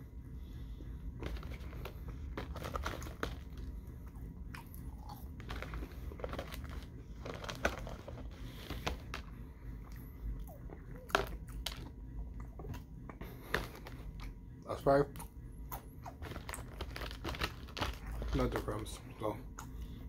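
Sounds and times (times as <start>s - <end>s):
steady low hum: 0.0s - 20.0s
person chewing crunchy fries: 1.2s - 19.9s.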